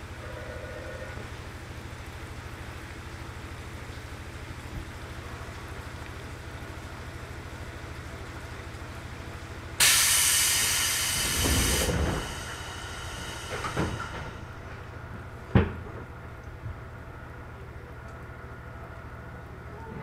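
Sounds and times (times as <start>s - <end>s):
train equipment humming: 3.6s - 19.9s
compressed air hiss: 9.8s - 14.4s.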